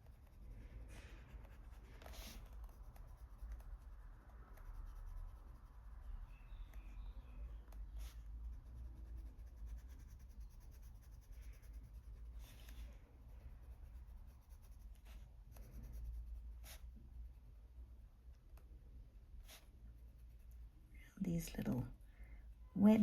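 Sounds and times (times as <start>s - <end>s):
pencil scratching on paper: 0.0s - 17.0s, 19.4s - 20.8s
steady low hum: 0.0s - 23.0s.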